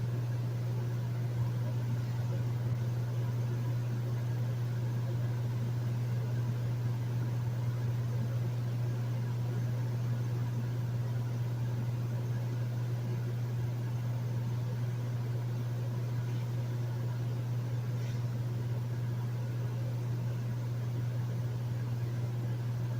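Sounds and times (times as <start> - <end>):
air conditioner humming: 0.0 - 22.9.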